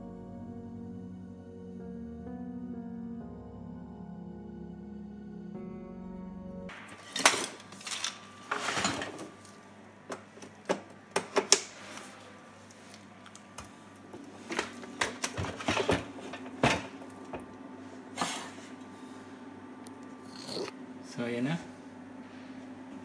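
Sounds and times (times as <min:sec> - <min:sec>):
faint electrical hum: 0:00.0 - 0:23.0.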